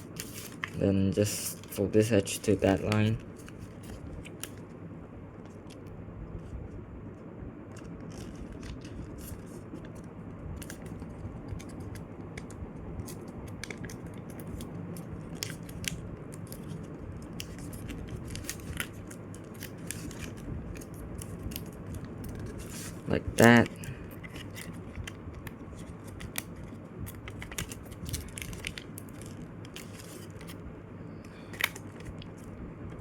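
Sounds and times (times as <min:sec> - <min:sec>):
paper being folded and creased: 0:00.0 - 0:04.7, 0:07.7 - 0:10.0, 0:10.6 - 0:30.6
low background hum: 0:00.0 - 0:33.0.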